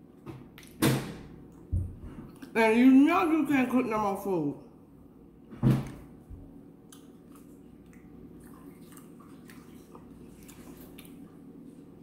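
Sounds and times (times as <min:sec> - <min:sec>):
person chewing: 0:06.8 - 0:11.4.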